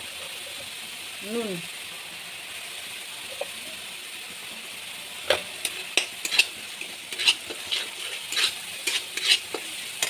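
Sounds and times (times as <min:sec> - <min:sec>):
paste sizzling in oil: 0:00.0 - 0:10.0
spatula scraping a metal pan: 0:05.6 - 0:10.0.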